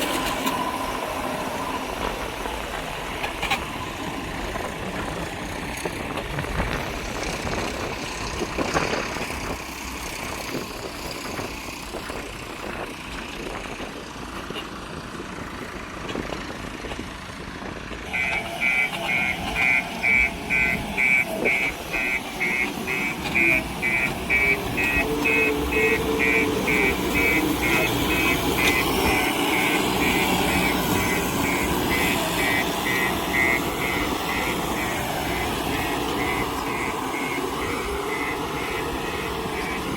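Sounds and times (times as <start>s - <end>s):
heavy vehicle engine running: 0.0s - 39.9s
repeating electronic beep: 18.2s - 39.9s.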